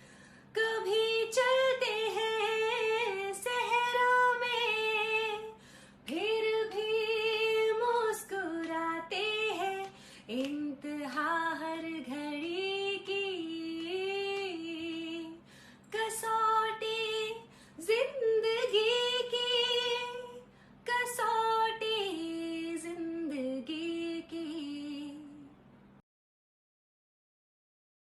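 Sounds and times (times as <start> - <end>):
woman singing: 0.5 - 25.5.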